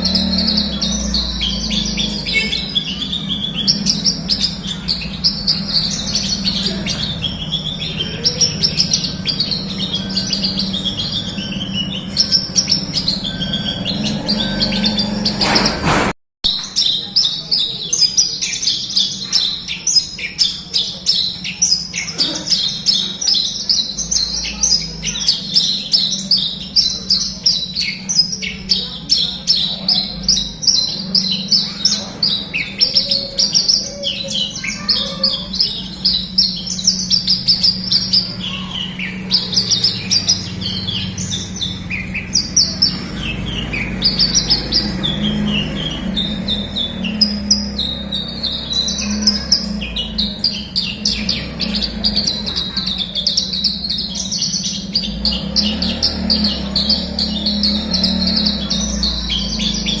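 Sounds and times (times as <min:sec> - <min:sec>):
bird singing chirps and trills: 0:00.0 - 1:00.0.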